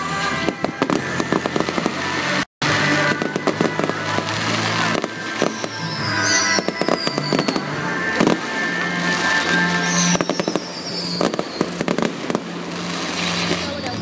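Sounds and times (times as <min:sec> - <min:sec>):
fireworks bangs and crackles: 0:00.0 - 0:14.0
loud music: 0:00.0 - 0:14.0
falling firework whistles: 0:02.9 - 0:14.0.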